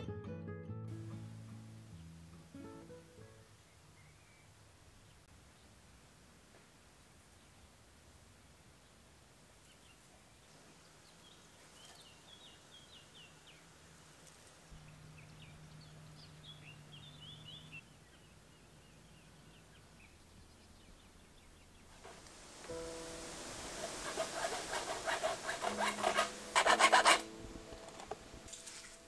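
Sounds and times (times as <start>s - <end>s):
faint low hum: 1.0s - 29.0s
birds chirping: 9.6s - 29.0s.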